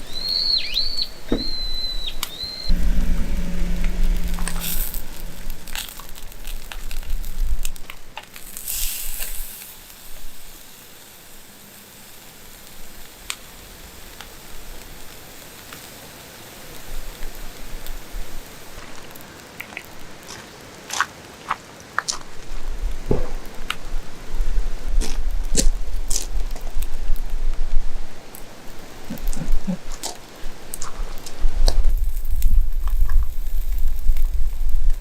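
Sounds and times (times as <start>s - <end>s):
low rumble: 2.7s - 8.2s.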